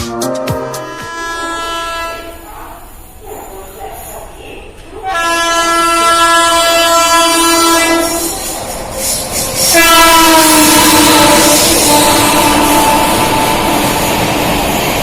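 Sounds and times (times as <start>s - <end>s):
locomotive air horn blasts: 0.5s - 2.4s, 5.0s - 8.4s, 9.6s - 13.8s
rush of passing train: 0.6s - 15.0s.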